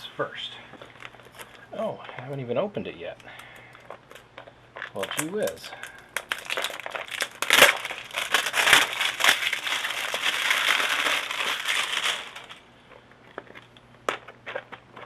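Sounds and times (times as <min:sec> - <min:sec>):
packaging crinkling: 0:00.7 - 0:01.6, 0:03.3 - 0:15.0.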